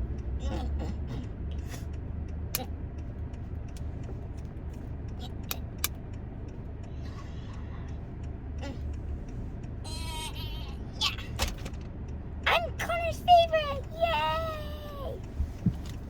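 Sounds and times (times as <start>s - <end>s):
sharp clicks: 1.9s - 6.6s.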